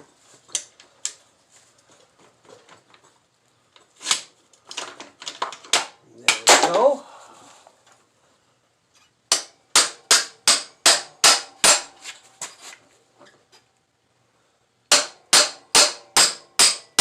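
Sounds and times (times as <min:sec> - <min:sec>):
hammer striking metal: 0:09.3 - 0:12.0, 0:14.9 - 0:17.0.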